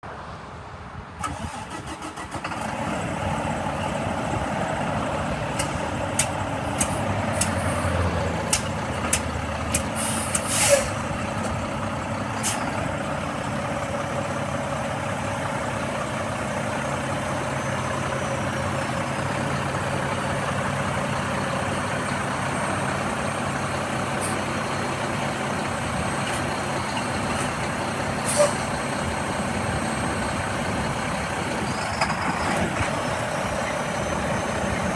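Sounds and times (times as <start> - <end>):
truck diesel engine cranking and idling: 1.2 - 34.9
sharp clicks: 5.5 - 7.6, 8.5 - 10.5
short air hiss: 10.0 - 11.0.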